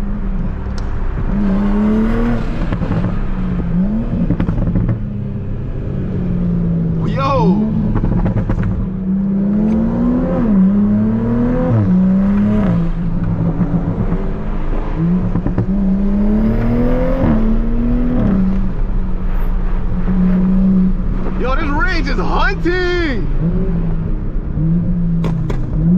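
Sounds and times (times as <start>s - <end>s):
car engine accelerating through gears: 0.0s - 21.6s, 23.3s - 25.9s.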